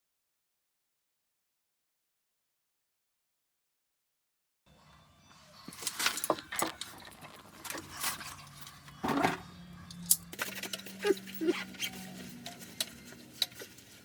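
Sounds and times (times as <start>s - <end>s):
tools and pipe fittings clicking: 9.9s - 14.0s.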